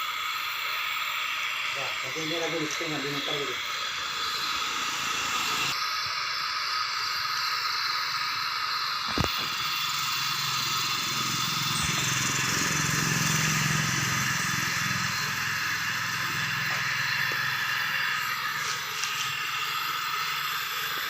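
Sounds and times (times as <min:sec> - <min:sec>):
welding hiss: 0:00.0 - 0:21.0
low hum: 0:09.0 - 0:21.0.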